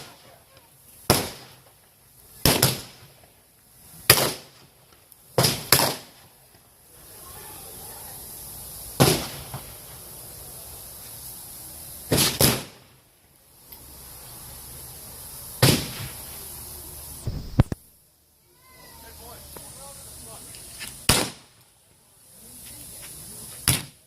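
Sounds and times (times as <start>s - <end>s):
gunshots: 1.1s - 1.6s, 2.4s - 3.0s, 4.1s - 4.6s, 5.4s - 6.2s, 9.0s - 9.6s, 12.1s - 12.8s, 15.6s - 16.1s, 21.1s - 21.4s.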